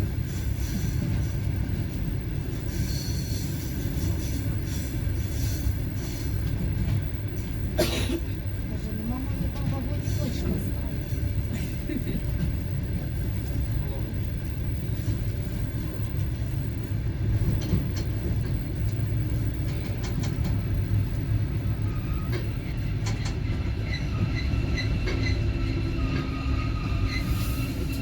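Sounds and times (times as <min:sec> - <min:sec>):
train carriage rumbling: 0:00.0 - 0:28.0.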